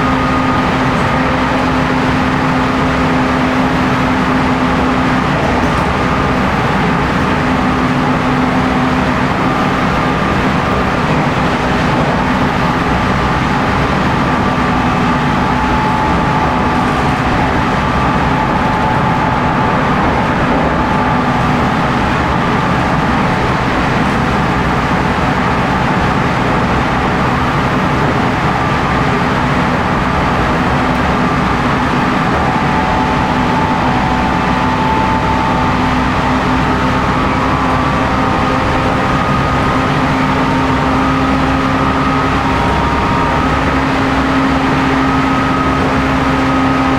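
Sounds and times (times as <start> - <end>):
train rolling noise: 0.0 - 46.9
train traction motor whine: 0.0 - 46.9.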